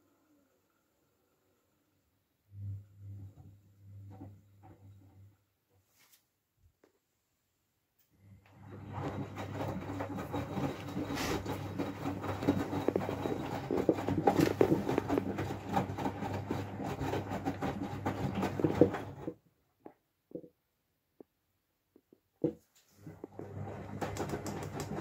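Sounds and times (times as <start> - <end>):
washing machine hum: 0.0 - 5.7, 8.2 - 19.6, 22.4 - 25.0.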